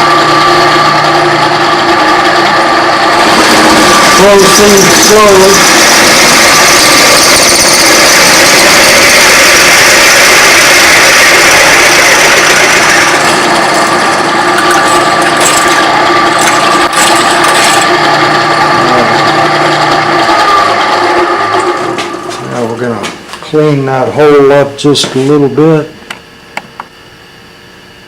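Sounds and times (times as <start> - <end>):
electric drill boring metal: 0.0 - 22.4.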